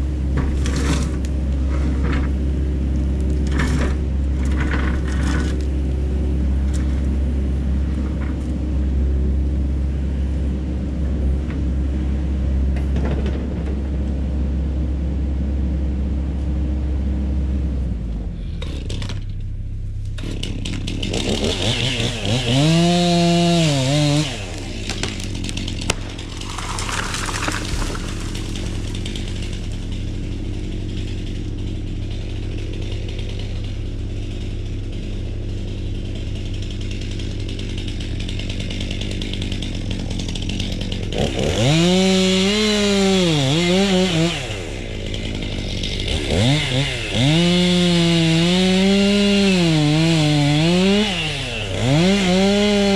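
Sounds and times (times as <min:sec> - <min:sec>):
low engine hum: 0:00.0 - 0:52.9
chainsaw revving and cutting: 0:20.3 - 0:52.9.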